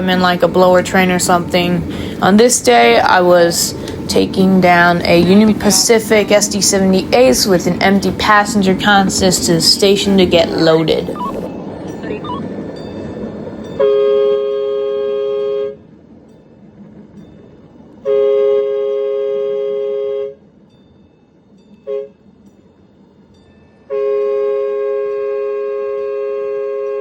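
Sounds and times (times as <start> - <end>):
locomotive horn blasts: 13.8 - 15.8, 18.0 - 20.4, 21.9 - 22.2, 23.9 - 27.0.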